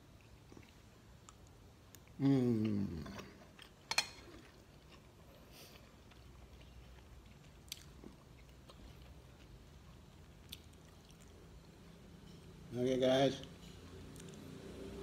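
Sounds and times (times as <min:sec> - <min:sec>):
person chewing with mouth closed: 0:00.0 - 0:12.0
low room hum: 0:00.0 - 0:15.0.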